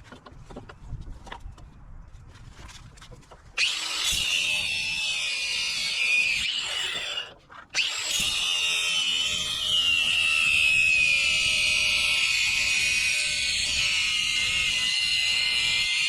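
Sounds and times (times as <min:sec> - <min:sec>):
power tool motor whining: 0:03.6 - 0:16.0.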